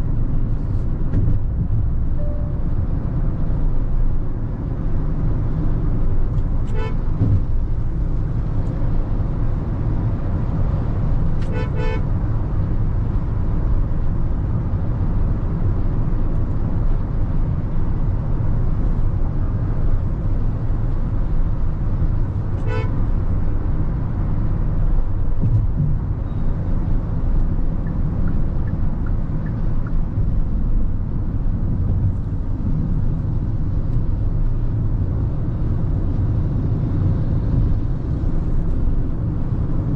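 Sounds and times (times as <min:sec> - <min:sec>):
engine and road noise rumble: 0:00.0 - 0:39.9
car horn toots: 0:06.7 - 0:07.1, 0:11.4 - 0:12.0, 0:22.6 - 0:23.0.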